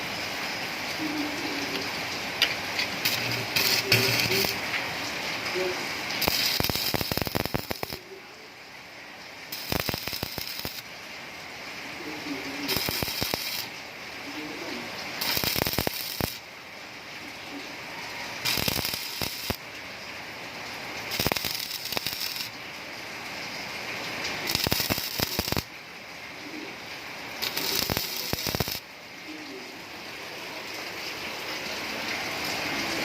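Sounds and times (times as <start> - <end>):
soft steady hiss: 0.0 - 33.0
welding arc crackling: 1.3 - 8.2, 9.5 - 10.9, 12.1 - 13.8, 14.4 - 16.5, 18.3 - 19.7, 20.8 - 22.6, 24.0 - 25.7, 27.3 - 28.9.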